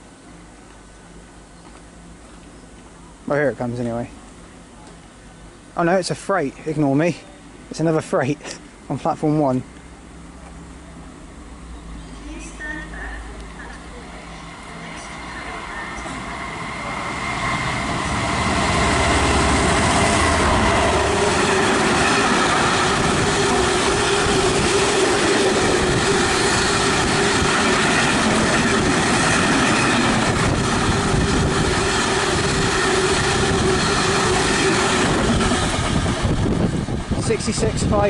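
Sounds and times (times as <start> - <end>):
freight train wheels rumbling: 7.8 - 38.0.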